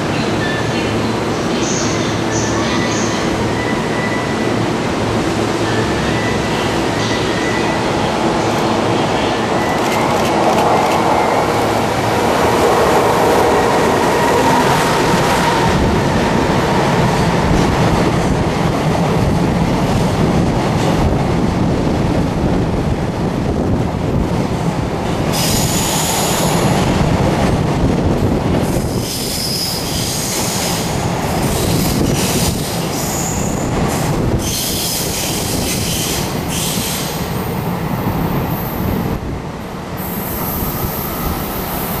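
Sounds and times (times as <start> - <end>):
train wheels rumbling on rails: 0.0 - 42.0
locomotive whine: 3.4 - 18.0
wheel squeal: 28.9 - 30.8.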